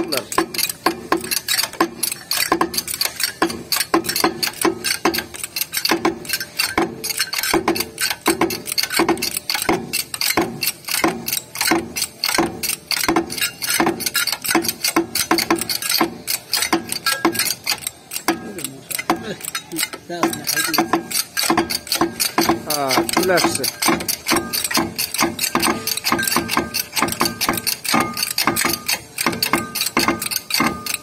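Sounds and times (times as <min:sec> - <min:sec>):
hand tools clicking on metal: 0:00.0 - 0:31.0.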